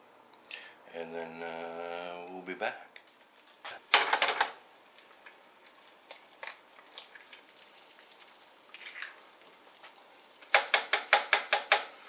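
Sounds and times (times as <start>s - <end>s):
faint kitchen clicks and knocks: 3.7s - 4.6s, 10.4s - 12.0s.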